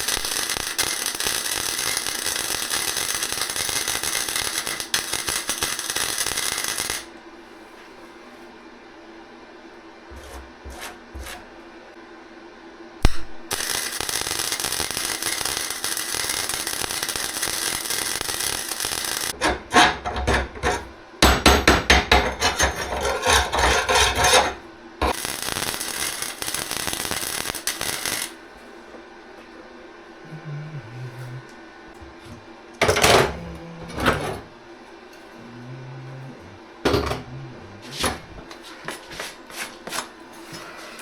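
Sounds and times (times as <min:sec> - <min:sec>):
welder arc frying hiss: 0:00.0 - 0:07.1, 0:13.0 - 0:28.6.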